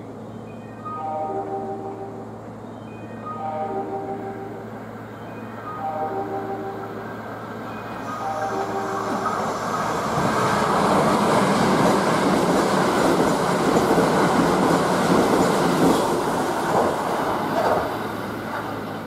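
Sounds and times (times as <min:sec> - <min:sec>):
electric train passing at speed: 0:00.0 - 0:19.0
wheels clattering over rail joints: 0:09.2 - 0:19.0.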